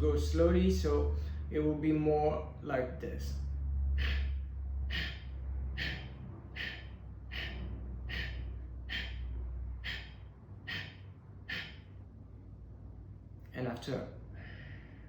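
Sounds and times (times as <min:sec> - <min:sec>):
forceful exhalations through nose: 0:04.0 - 0:12.0.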